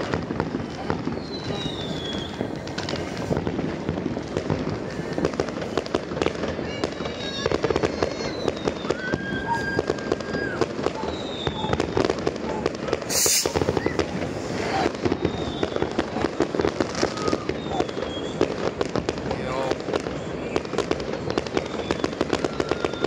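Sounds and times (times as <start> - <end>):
firework whistles: 0.0 - 23.0
fireworks crackling and popping: 0.0 - 23.0
short loud hiss: 13.1 - 13.7.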